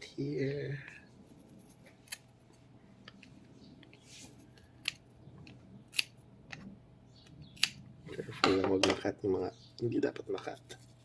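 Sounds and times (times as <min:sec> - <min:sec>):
scissors snipping hair: 0:05.9 - 0:06.1.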